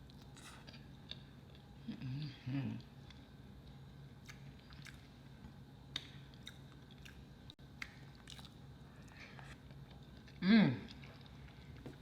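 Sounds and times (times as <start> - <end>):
person chewing food: 2.7 - 12.0.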